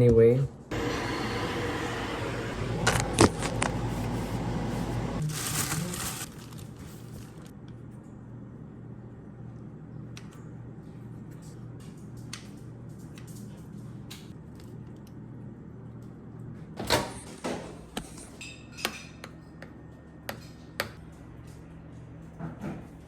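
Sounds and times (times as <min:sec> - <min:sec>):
steady low hum: 0:00.7 - 0:05.3.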